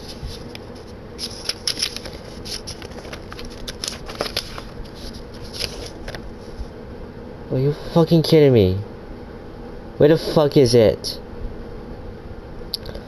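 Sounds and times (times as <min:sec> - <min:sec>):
packaging rustling: 0:00.0 - 0:06.7.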